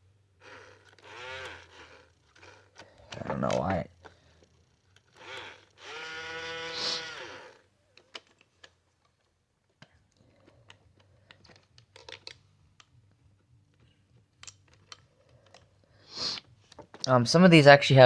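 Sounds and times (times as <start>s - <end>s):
toy electric motor whirring: 0.0s - 9.4s, 13.7s - 16.7s.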